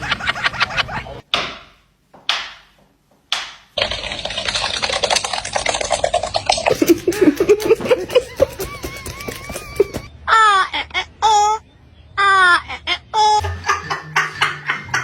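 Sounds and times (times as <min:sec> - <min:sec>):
crackling rustling noise: 0:03.8 - 0:10.0.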